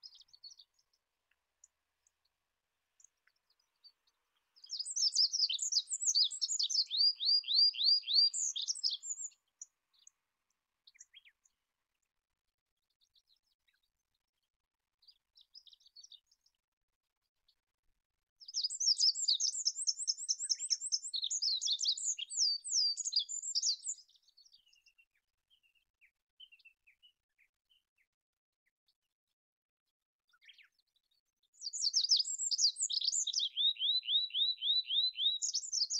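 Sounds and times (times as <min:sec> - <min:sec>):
bird trilling song: 0:04.6 - 0:10.1, 0:10.9 - 0:11.5, 0:18.4 - 0:25.8, 0:31.6 - 0:35.9.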